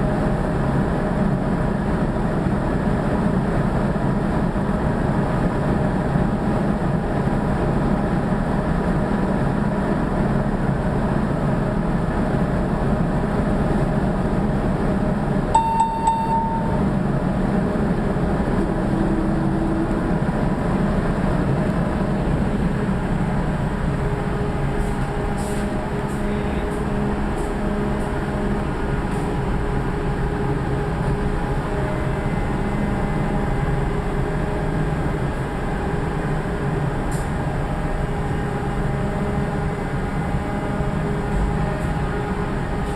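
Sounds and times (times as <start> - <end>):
factory machinery drone: 0.0 - 42.9
short high beep: 15.6 - 16.9.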